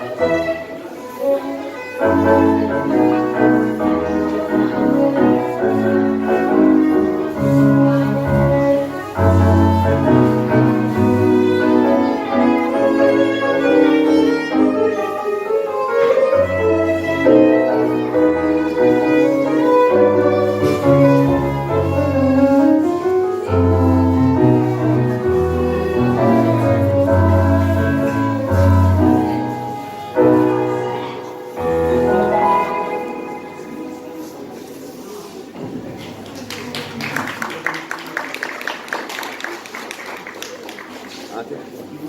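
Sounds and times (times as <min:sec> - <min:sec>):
violin melody: 0:00.0 - 0:35.1
piano: 0:00.0 - 0:41.0
bass: 0:23.5 - 0:29.3.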